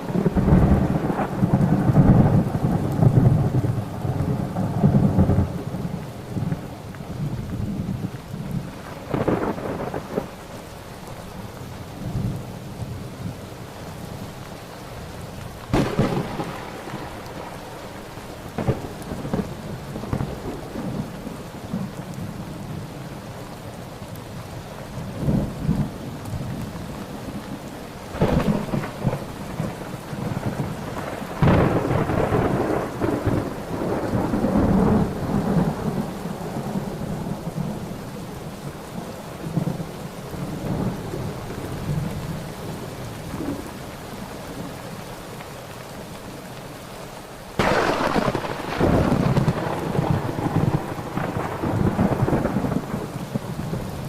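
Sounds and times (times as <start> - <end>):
rolling thunder rumble: 0.0 - 10.4, 15.7 - 23.0, 25.0 - 38.7, 47.6 - 54.0
steady rain: 0.0 - 54.0
thunder claps: 8.6 - 10.4, 15.7 - 21.9, 28.1 - 37.6, 47.6 - 54.0.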